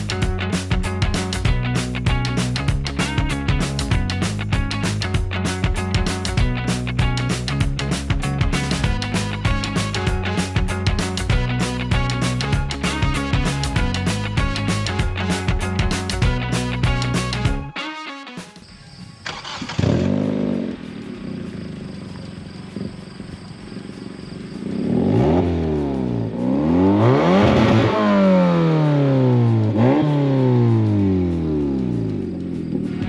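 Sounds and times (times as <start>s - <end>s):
car engine starting and revving: 19.2s - 33.0s.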